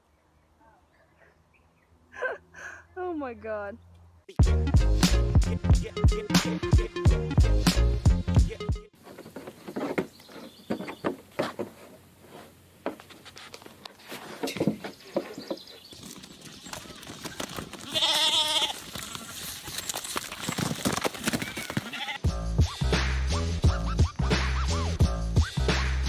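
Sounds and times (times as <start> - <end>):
wavering bleat: 17.9 - 19.3, 21.8 - 22.2.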